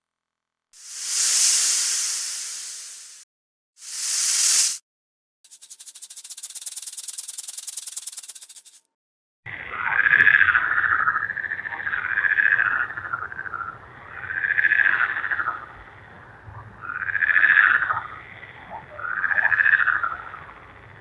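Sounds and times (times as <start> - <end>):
pulsed animal calls: 16.5 - 20.9.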